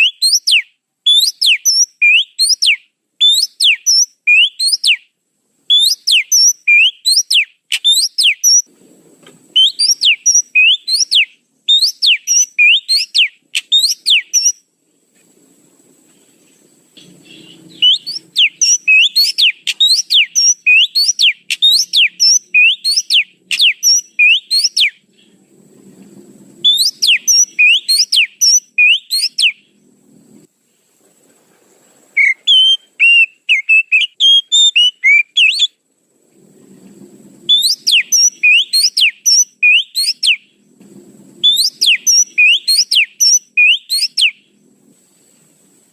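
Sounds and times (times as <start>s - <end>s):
bird whistling high sharp notes: 0.0s - 5.0s, 5.7s - 8.7s, 9.6s - 14.6s, 17.2s - 25.0s, 26.6s - 29.6s, 32.2s - 35.8s, 37.5s - 40.4s, 41.4s - 44.4s.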